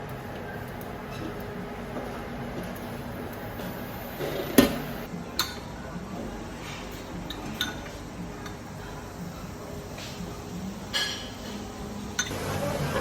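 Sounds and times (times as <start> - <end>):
plates glasses and cutlery clinking: 10.9 - 13.0.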